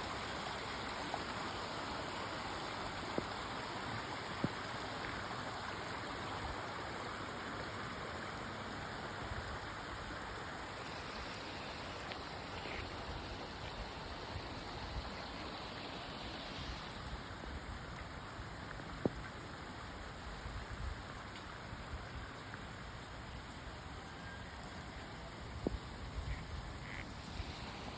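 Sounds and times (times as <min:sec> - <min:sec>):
rainwater rushing: 0:27.1 - 0:27.9.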